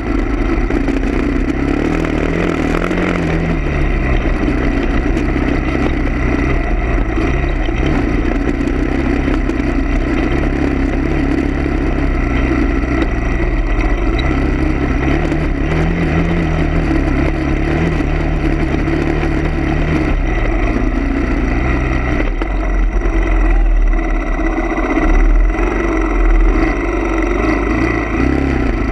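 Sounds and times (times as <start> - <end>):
low rumbles: 0.0 - 28.9
vehicle engine running: 0.0 - 28.9.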